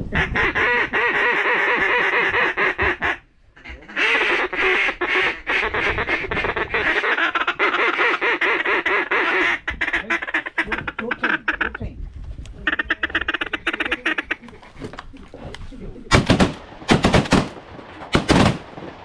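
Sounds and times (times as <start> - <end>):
duck call quacking chatter: 0.1 - 11.9, 12.6 - 15.0.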